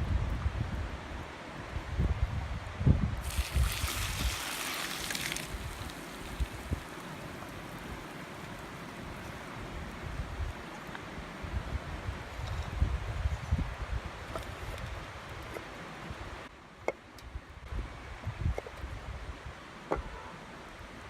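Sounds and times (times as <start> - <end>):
wind buffeting microphone: 0.0 - 10.6, 11.4 - 15.6
river rushing: 3.2 - 10.0.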